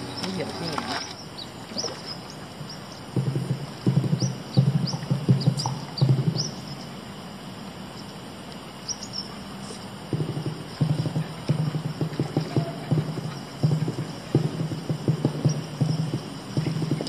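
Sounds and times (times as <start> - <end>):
small birds chirping: 0.0 - 7.2, 8.8 - 17.0
rapid low clicking or rattling: 2.6 - 6.6, 10.1 - 17.0.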